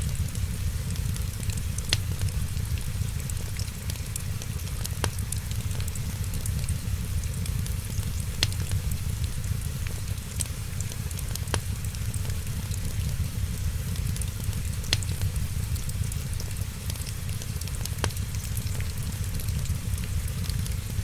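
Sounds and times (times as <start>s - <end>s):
fireplace fire crackling: 0.0s - 21.0s
rain hiss: 0.0s - 21.0s
sharp pops of fire: 7.4s - 9.0s, 13.5s - 16.4s.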